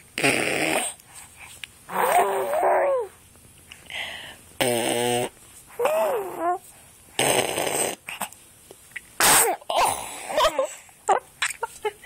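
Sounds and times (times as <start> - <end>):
baby cooing: 1.9 - 3.2, 5.7 - 6.6.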